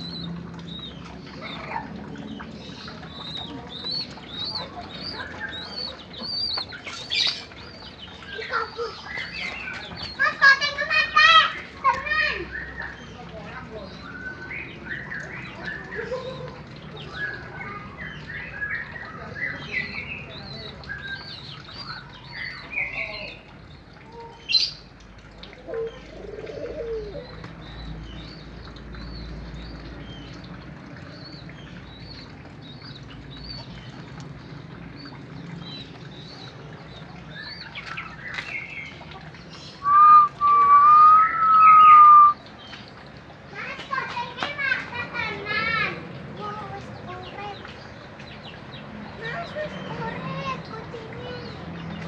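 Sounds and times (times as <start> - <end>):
birds chirping and twittering: 0.0 - 52.0
lower bird calls: 39.7 - 42.4.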